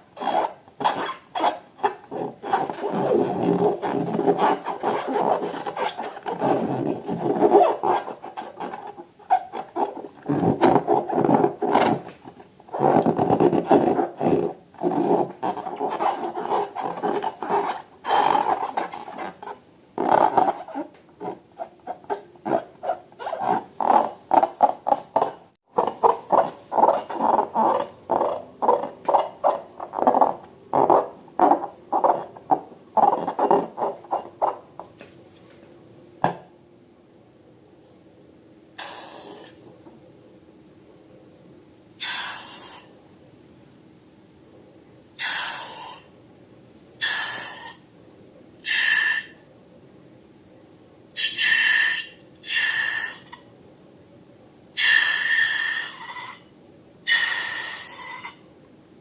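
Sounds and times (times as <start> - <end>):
air squealing from balloon: 42.0 - 42.9, 45.2 - 46.0, 47.0 - 47.8, 48.6 - 49.4, 51.2 - 53.2, 54.8 - 56.4, 57.1 - 58.4.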